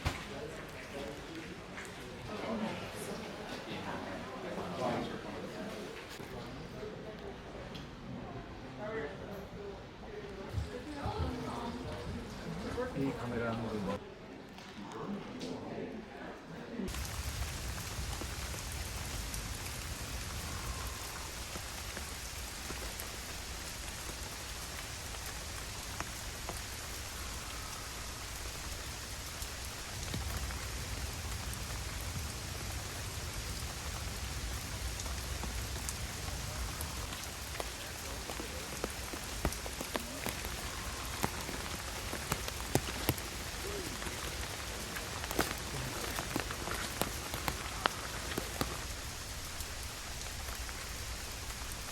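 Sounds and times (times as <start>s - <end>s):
steady rain falling: 0.0s - 51.9s
raindrops ticking: 16.9s - 51.9s.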